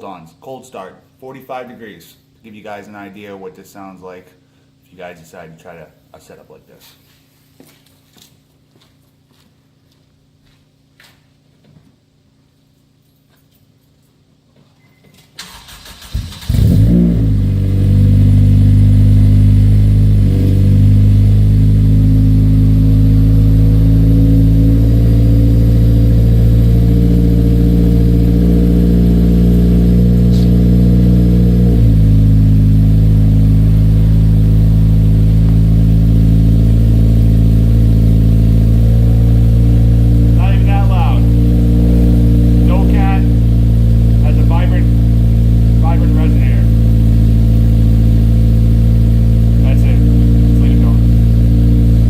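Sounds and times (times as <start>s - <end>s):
car engine fast idle: 15.4s - 23.8s, 29.0s - 52.0s.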